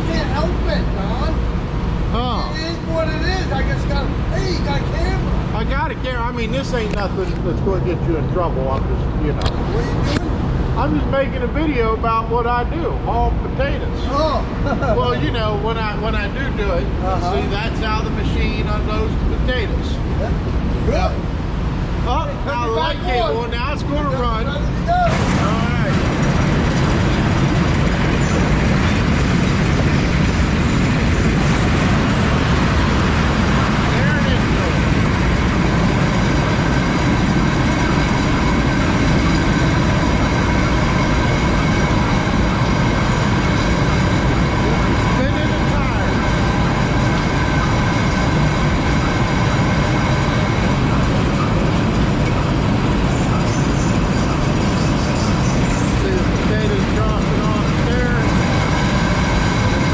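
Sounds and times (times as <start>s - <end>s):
conveyor machine rumbling: 0.0s - 59.9s
thin steady whine: 0.0s - 59.9s.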